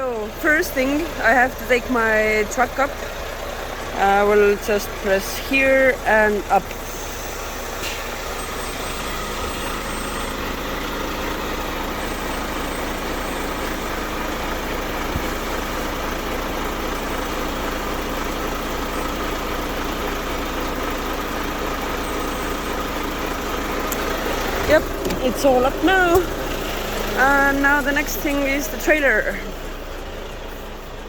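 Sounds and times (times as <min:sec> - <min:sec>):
truck idling: 0:00.0 - 0:31.0
air suspension raising: 0:06.7 - 0:10.8.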